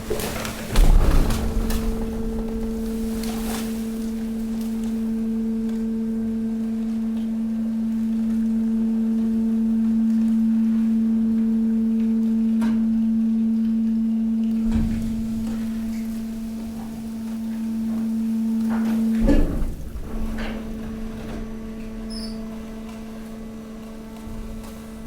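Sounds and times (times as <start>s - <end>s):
hydraulic pump humming: 0.0s - 12.2s, 14.2s - 25.0s
low thud: 0.2s - 4.8s.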